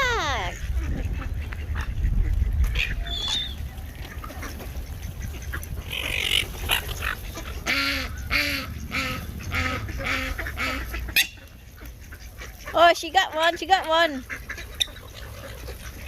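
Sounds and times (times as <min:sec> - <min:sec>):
duck quacking: 0:04.2 - 0:16.0.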